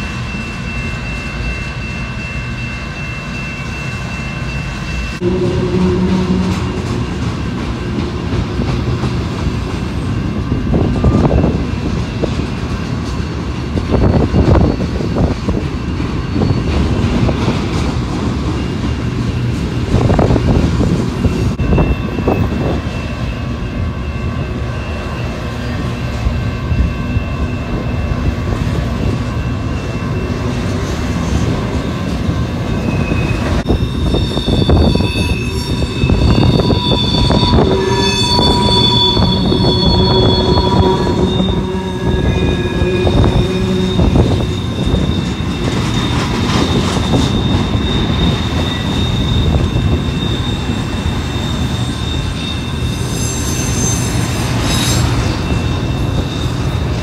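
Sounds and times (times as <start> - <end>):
freight train rumbling: 0.0 - 57.0
wheel flange squeal: 13.2 - 17.4, 32.7 - 57.0.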